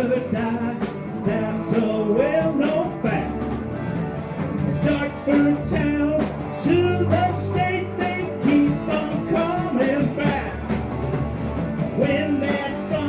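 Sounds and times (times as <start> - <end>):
country rock band instrumental: 0.0 - 13.0.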